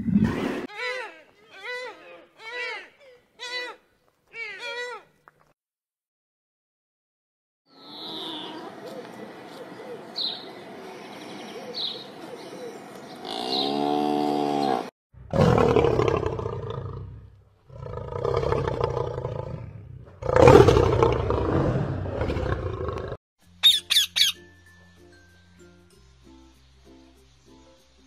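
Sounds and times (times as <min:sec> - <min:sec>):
animal roaring: 0:13.2 - 0:23.2
high bird chirps: 0:23.6 - 0:24.4.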